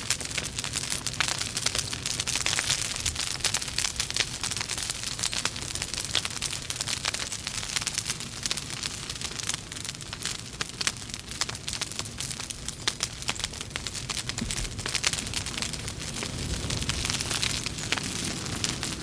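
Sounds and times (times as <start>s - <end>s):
fire hissing: 0.0s - 19.0s
logs crackling and popping: 0.0s - 19.0s.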